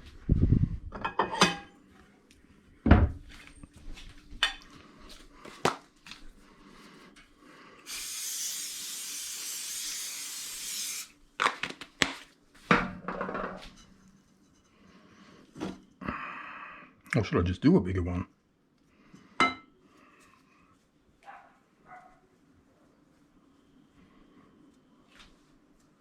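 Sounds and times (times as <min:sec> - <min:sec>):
kitchen things knocking and clattering: 0:00.9 - 0:01.7, 0:12.7 - 0:14.0
aerosol can hissing: 0:07.8 - 0:11.2.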